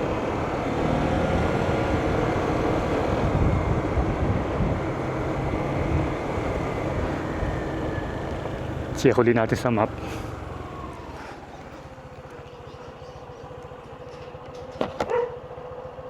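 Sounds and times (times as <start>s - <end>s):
vehicle engine and road rumble: 0.0s - 16.0s
wind noise on microphone: 3.1s - 8.0s.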